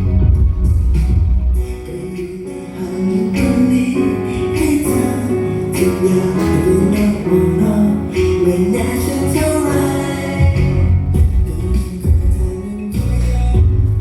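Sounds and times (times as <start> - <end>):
person singing: 0.0 - 14.0
upbeat pop song: 0.0 - 14.0.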